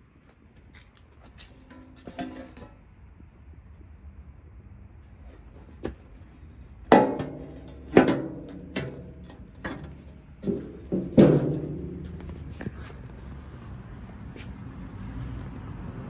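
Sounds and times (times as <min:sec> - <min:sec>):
metal clanks ringing: 0:01.6 - 0:02.9, 0:06.9 - 0:12.9.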